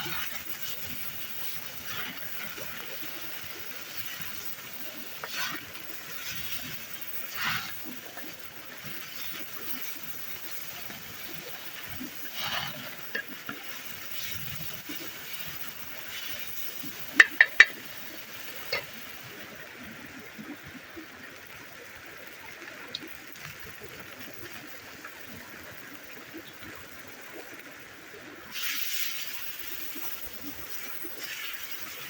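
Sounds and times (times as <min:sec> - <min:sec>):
utensil scraping in a pan: 0:00.0 - 0:19.0, 0:28.5 - 0:32.0
faint food sizzle: 0:00.0 - 0:32.0.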